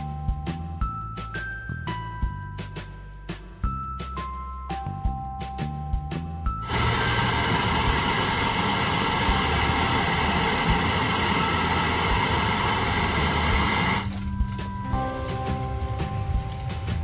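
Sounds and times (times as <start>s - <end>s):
background music: 0.0s - 17.0s
power tool motor whining: 6.6s - 14.1s.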